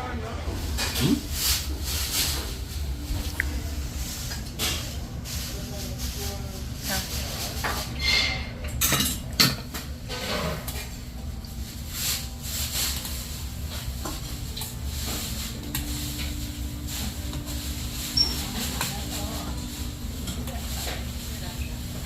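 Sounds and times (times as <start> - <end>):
low background hum: 0.0 - 22.0
dishes and cutlery clinking: 7.2 - 11.0, 12.9 - 21.7.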